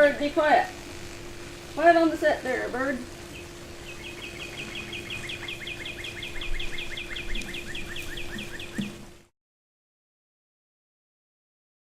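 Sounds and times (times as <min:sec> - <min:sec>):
steady low hum: 0:00.0 - 0:09.3
bird chirping rapidly: 0:03.0 - 0:09.0.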